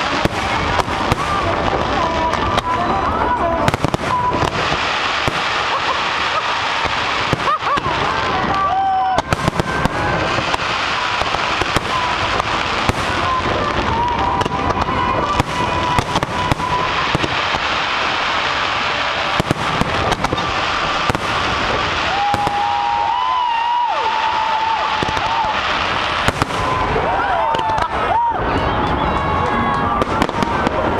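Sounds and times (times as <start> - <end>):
fireworks shells bursting: 0.0 - 23.5
fireworks crackling: 0.0 - 30.9.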